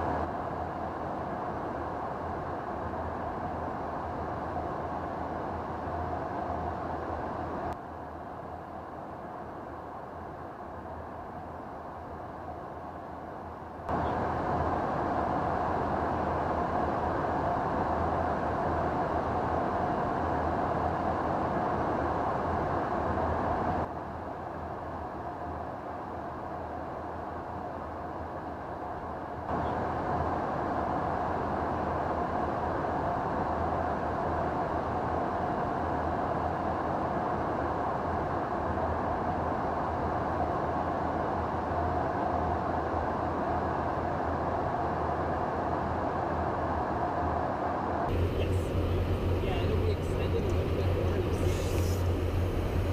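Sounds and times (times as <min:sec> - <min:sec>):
jet engine rushing hum: 0:48.1 - 0:52.9.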